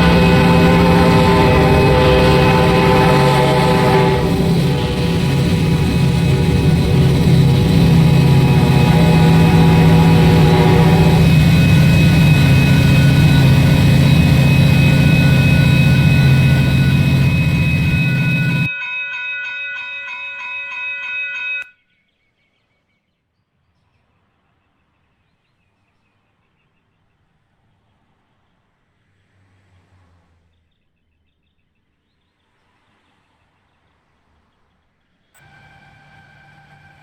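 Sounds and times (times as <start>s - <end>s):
diesel locomotive engines: 0.0s - 21.6s, 35.4s - 37.0s
steady high tones: 0.0s - 21.6s
heavy wheel and rail noise: 0.0s - 21.7s, 35.4s - 37.0s.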